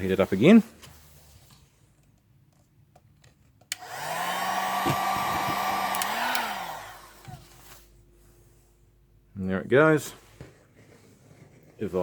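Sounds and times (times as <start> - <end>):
heat gun switch click: 3.7 - 4.0, 5.8 - 6.6
heat gun blower running: 3.7 - 7.7.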